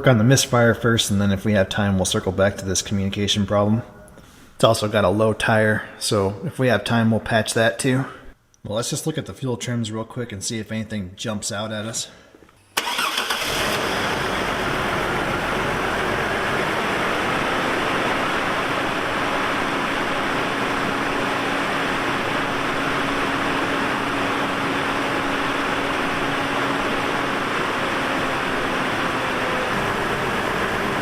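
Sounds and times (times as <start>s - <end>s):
car engine idling: 12.8s - 31.0s.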